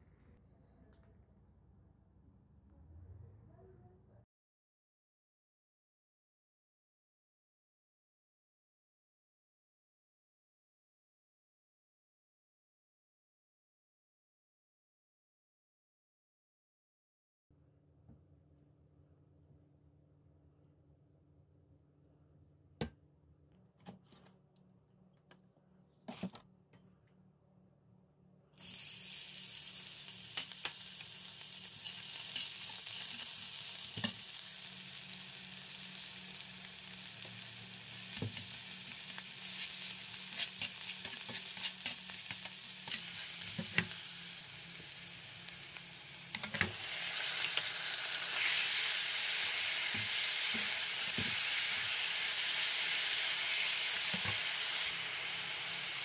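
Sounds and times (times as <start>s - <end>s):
garlic and onion sizzling in oil: 28.6s - 56.0s
metal spatula scraping and tapping: 40.3s - 44.0s, 46.3s - 46.7s.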